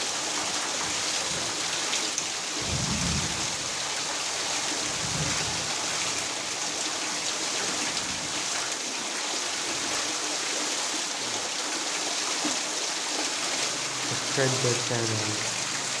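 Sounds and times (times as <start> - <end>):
heavy rain: 0.0 - 16.0
low rumbles: 2.6 - 4.1, 4.8 - 6.4.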